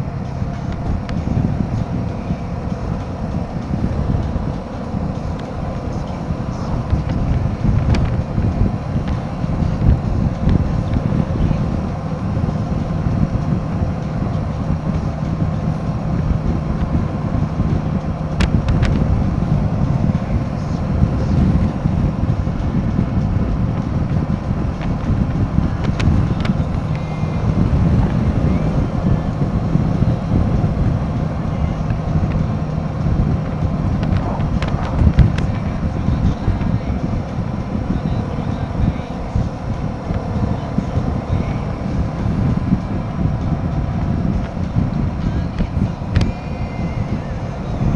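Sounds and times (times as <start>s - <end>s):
motorcycle engine running: 0.0s - 47.9s
wind rush on microphone: 0.0s - 47.9s.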